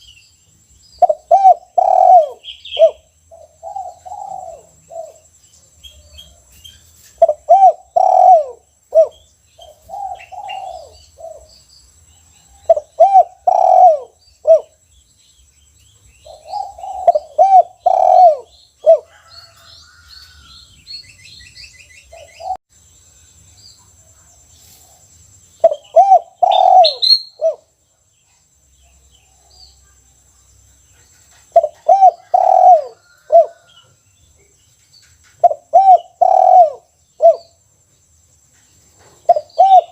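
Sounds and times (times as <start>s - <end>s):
dove cooing: 1.0s - 5.3s, 7.2s - 11.5s, 12.6s - 14.8s, 16.2s - 19.7s, 25.6s - 27.7s, 31.4s - 33.7s, 35.4s - 37.6s, 39.2s - 39.9s.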